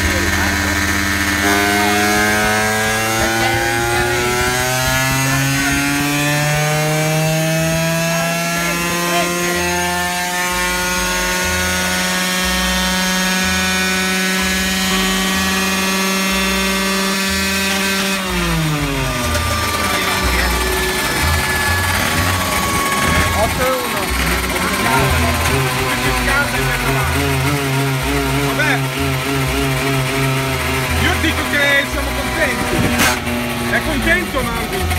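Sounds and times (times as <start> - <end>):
two-stroke engine revving: 0.0 - 34.9.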